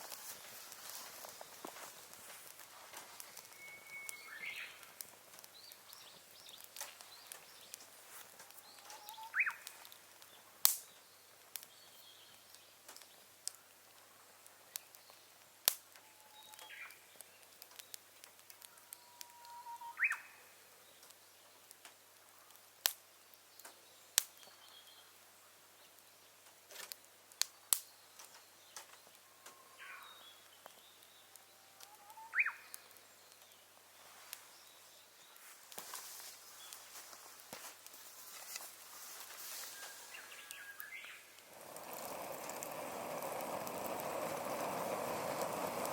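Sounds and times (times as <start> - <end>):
campfire crackling and popping: 0.0 - 19.3, 20.0 - 29.6, 30.2 - 45.9
bird calling: 3.3 - 7.8, 8.6 - 9.8, 18.7 - 20.6, 29.2 - 30.5, 31.6 - 32.9.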